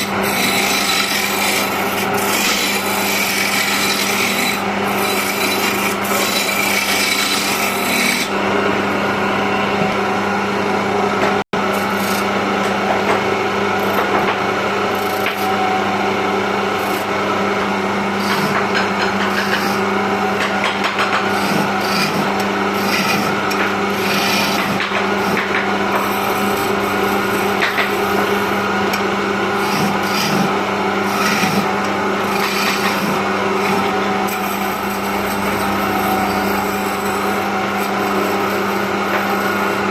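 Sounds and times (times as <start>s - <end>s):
turning tool rasping on wood: 0.0s - 8.3s, 11.7s - 12.3s, 14.9s - 15.6s, 16.7s - 17.2s, 18.1s - 29.0s, 29.6s - 39.9s
wood lathe motor hum: 0.0s - 39.9s.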